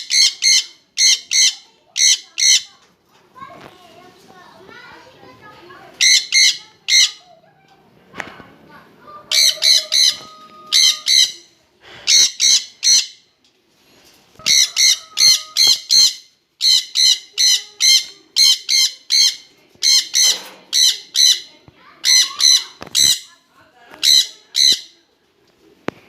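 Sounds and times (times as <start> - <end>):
parrots calling shrilly: 0.0 - 2.8, 5.9 - 7.4, 9.1 - 13.3, 14.4 - 23.4, 24.0 - 25.0.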